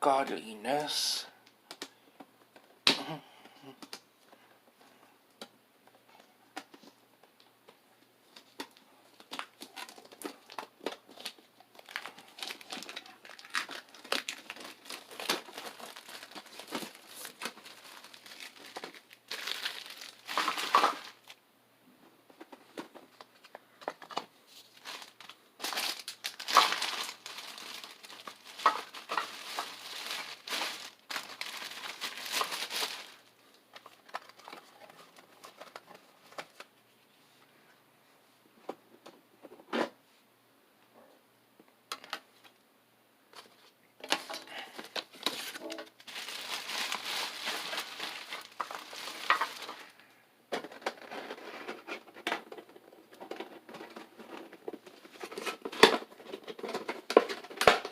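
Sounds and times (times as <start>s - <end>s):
foil wrapper crinkling: 8.6s - 21.4s, 23.9s - 36.6s, 44.0s - 50.1s.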